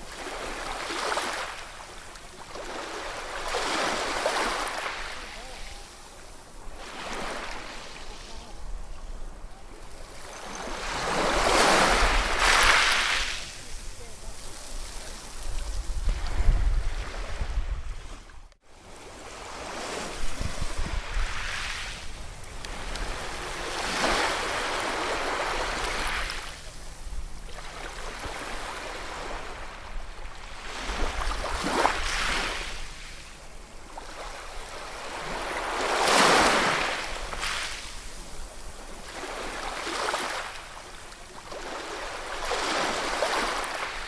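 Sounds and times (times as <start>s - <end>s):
ocean waves breaking: 9.7s - 33.0s.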